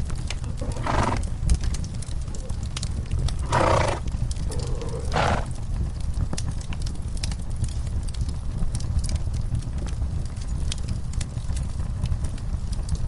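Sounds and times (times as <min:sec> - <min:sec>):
fire crackling pops: 0:00.0 - 0:13.0
wood fire rumbling: 0:00.0 - 0:13.0
horse snorting: 0:00.6 - 0:01.2, 0:03.4 - 0:05.6.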